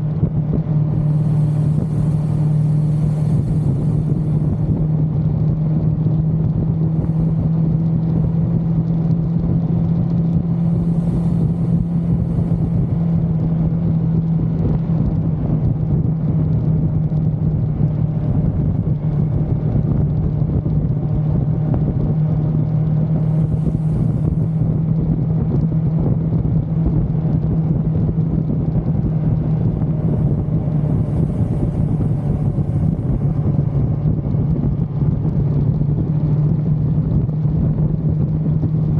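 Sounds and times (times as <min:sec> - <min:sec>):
riding noise rush: 0:00.0 - 0:05.5, 0:10.4 - 0:13.8, 0:23.0 - 0:25.1, 0:28.4 - 0:37.5
motorcycle engine cruising: 0:00.0 - 0:38.9.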